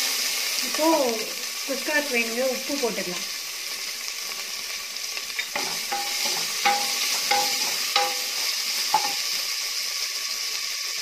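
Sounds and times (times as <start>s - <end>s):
onions sizzling in oil: 0.0s - 11.0s
spatula knocking on metal pot: 5.6s - 8.4s, 9.0s - 9.2s.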